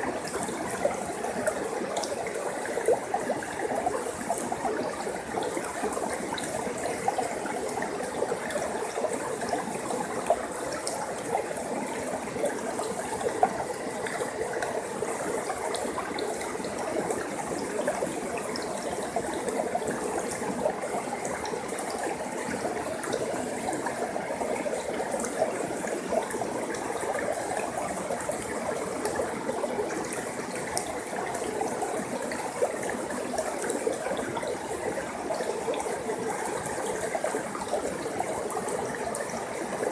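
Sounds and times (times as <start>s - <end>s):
stream flowing over rocks: 0.0s - 39.9s
water splashes and drips: 0.0s - 39.9s.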